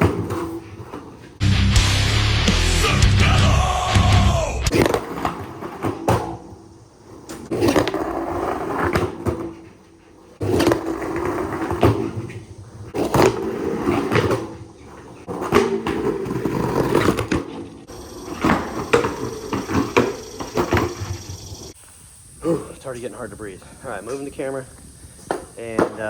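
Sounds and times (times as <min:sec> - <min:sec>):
skateboard rolling on concrete: 0:00.0 - 0:01.7, 0:04.0 - 0:21.8
skateboard clacking on ground: 0:10.4 - 0:21.2, 0:25.3 - 0:26.0.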